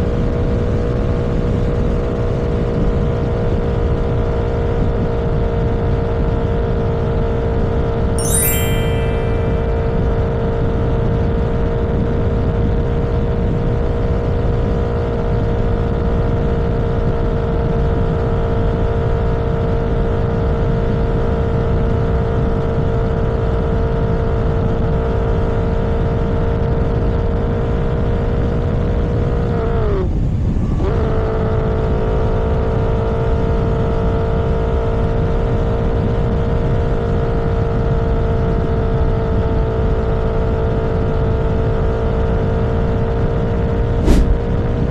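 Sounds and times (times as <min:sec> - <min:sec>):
road and wind noise: 0:28.6 - 0:33.0, 0:43.2 - 0:44.9.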